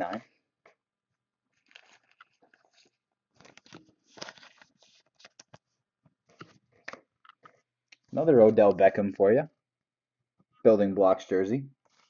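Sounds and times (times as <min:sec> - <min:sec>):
trading cards rustling: 0:01.5 - 0:05.7.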